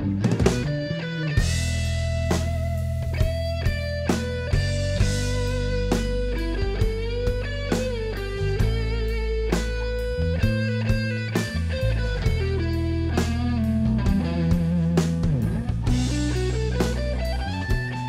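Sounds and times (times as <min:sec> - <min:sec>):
rock and roll band playing: 0:00.0 - 0:18.0
drum hits: 0:01.4 - 0:12.6.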